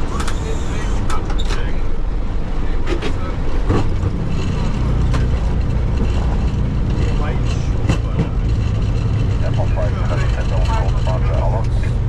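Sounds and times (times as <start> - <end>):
aircraft engines rumbling: 0.0 - 12.0
wheels rumbling on runway: 0.0 - 12.0
sharp rattles and knocks: 2.8 - 11.2.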